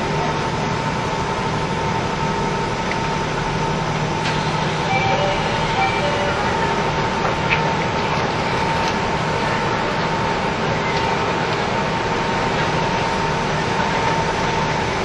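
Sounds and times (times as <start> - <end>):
railcar engine and wheels rumble: 0.0 - 15.0
thin steady whine: 0.0 - 15.0.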